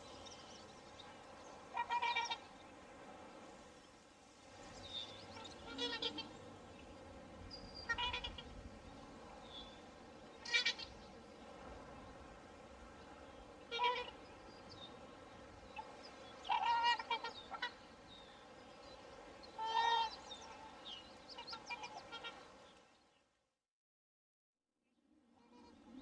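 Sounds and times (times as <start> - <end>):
swans calling: 1.6 - 2.5, 5.4 - 6.5, 7.8 - 8.6, 10.4 - 11.0, 13.6 - 14.2, 15.8 - 18.0, 19.5 - 22.5.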